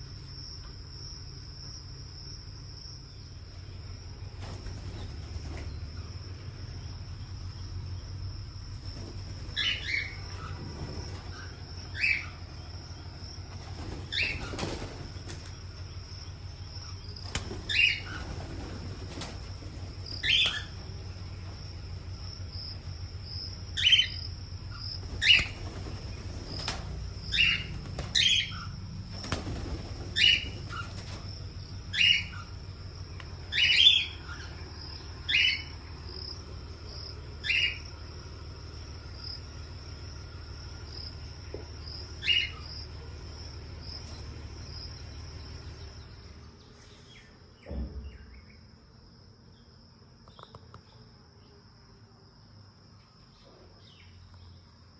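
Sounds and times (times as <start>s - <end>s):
pet bird chirping: 9.5s - 13.4s, 14.0s - 18.5s, 20.0s - 21.3s, 23.3s - 29.3s, 30.1s - 38.0s, 41.8s - 43.0s
low thump: 47.6s - 48.2s.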